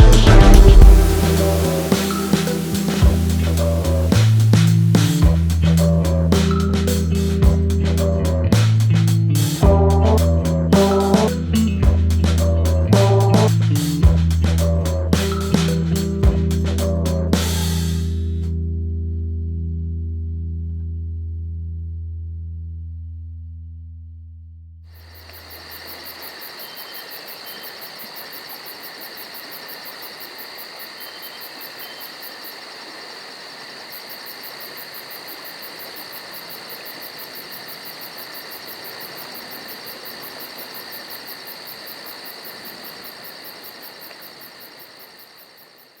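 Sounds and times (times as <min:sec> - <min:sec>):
low music note: 0:00.0 - 0:04.6
insects chirring: 0:01.0 - 0:17.9, 0:25.0 - 0:46.0.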